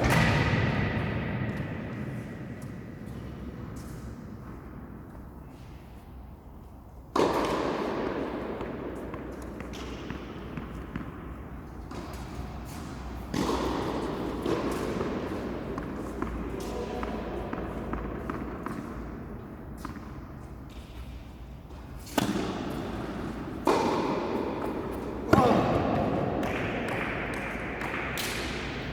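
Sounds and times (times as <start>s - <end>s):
tennis ball hits and bounces: 0.0s - 1.6s, 7.1s - 21.0s, 21.7s - 28.8s.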